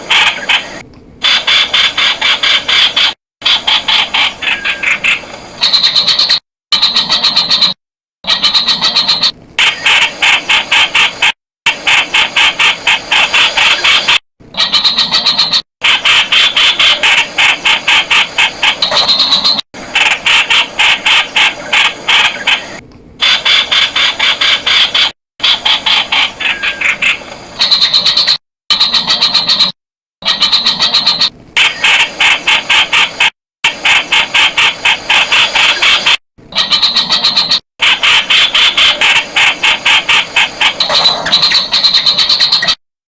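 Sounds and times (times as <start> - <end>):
bulbul calling: 5.6 - 7.7, 18.8 - 19.6, 40.8 - 42.8.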